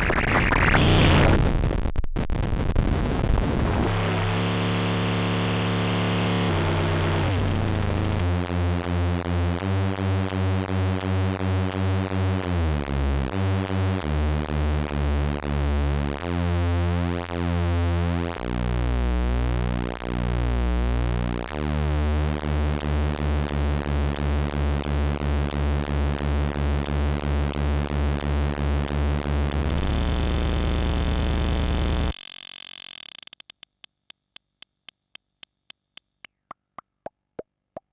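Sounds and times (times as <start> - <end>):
pulsing synthesizer tone: 3.8 - 9.3, 19.3 - 32.2.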